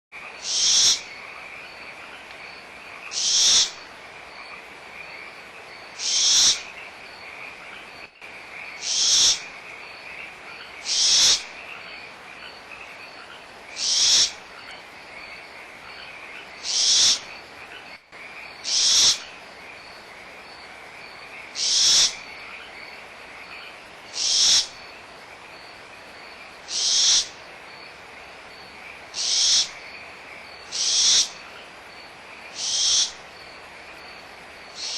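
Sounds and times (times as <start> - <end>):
frog chorus trilling: 0.2 - 34.9
owl nestlings hissing: 0.4 - 1.0, 3.1 - 3.8, 6.0 - 6.6, 8.8 - 9.5, 10.8 - 11.5, 13.8 - 14.4, 16.6 - 17.2, 18.6 - 19.2, 21.6 - 22.2, 24.1 - 24.7, 26.7 - 27.4, 29.2 - 29.7, 30.7 - 31.4, 32.6 - 33.2.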